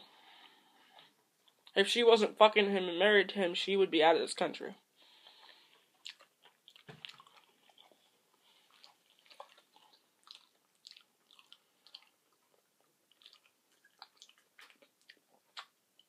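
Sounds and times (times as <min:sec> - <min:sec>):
soft mouth clicks chewing: 0:00.3 - 0:01.8, 0:05.2 - 0:16.0.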